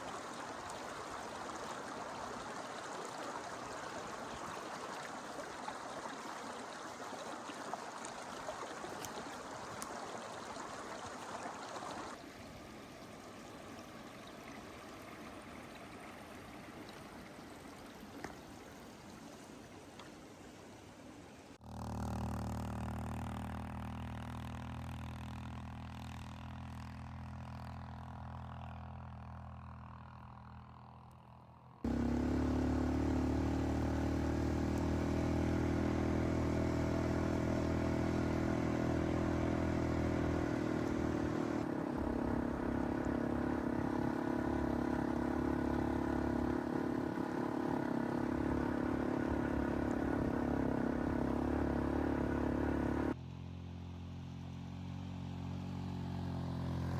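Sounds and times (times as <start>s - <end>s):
small vehicle engine running: 21.6s - 56.9s.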